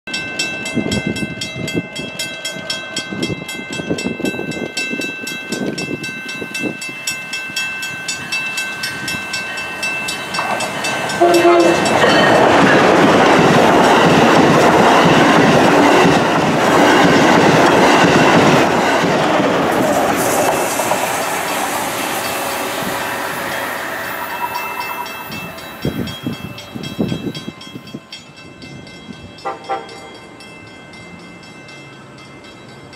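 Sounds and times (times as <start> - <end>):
crossing bell ringing: 0.1 - 32.9
train wheels rushing on rail: 0.3 - 32.9
train horn: 11.1 - 12.2, 29.4 - 30.1.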